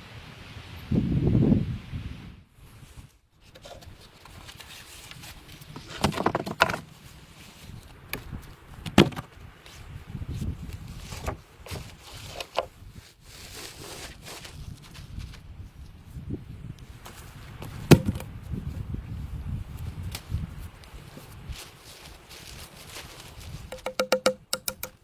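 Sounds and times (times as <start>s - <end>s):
rustling and shuffling: 2.8s - 24.0s
wood knocking and clattering: 5.8s - 6.9s, 8.8s - 9.3s, 17.6s - 18.3s, 23.7s - 25.0s.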